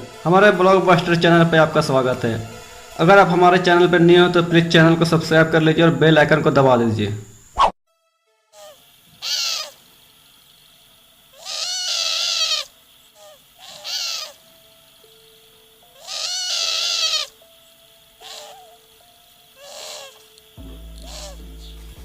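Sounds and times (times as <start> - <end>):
bird calling: 8.6 - 9.9, 11.3 - 22.0.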